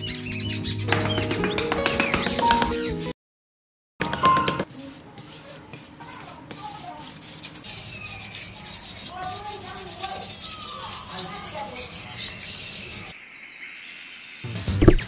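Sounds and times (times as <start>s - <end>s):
metal spoon scraping dry soil: 4.6s - 13.2s.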